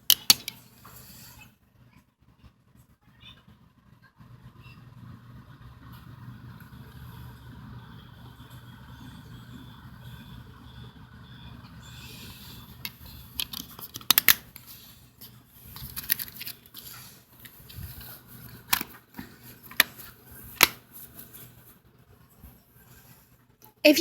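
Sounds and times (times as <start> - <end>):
low background hum: 0.0 - 24.0
sharp plastic clicks: 12.8 - 14.5.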